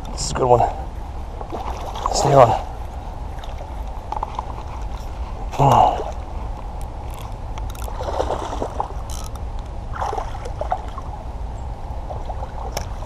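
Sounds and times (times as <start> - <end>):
steady low rumble: 0.0 - 13.0
fish thrashing water splashes: 1.4 - 2.8, 7.9 - 9.0, 9.9 - 11.0.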